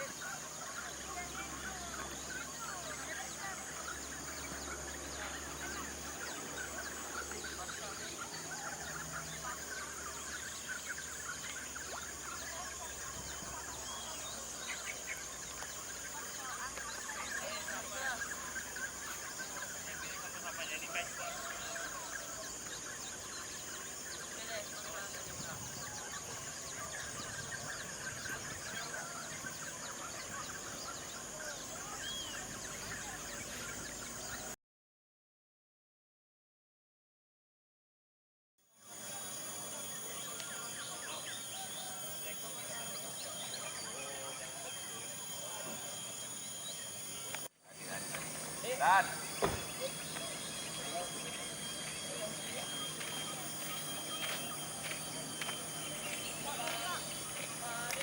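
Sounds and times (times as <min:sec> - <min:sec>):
birds chirping: 0:00.0 - 0:34.6, 0:38.8 - 0:58.0
steady high-pitched hum: 0:00.0 - 0:34.6, 0:38.8 - 0:58.0
high-pitched buzz: 0:42.1 - 0:58.0.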